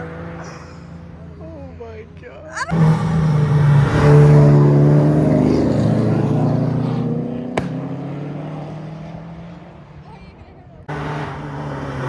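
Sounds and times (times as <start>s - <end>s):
car engine passing by: 0.0s - 2.0s, 2.6s - 10.1s, 10.8s - 12.0s
sharp pop: 7.5s - 7.9s.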